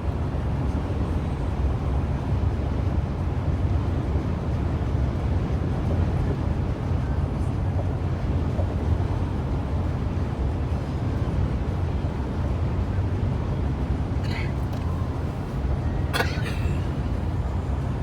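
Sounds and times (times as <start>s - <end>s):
car driving rumble: 14.1s - 18.0s.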